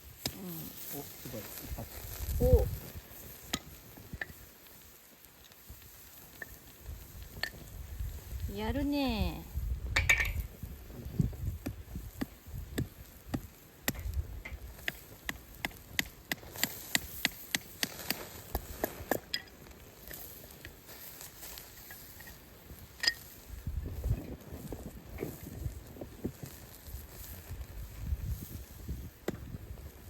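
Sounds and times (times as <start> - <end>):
hatchet chopping firewood: 11.4 - 20.2, 29.2 - 29.6.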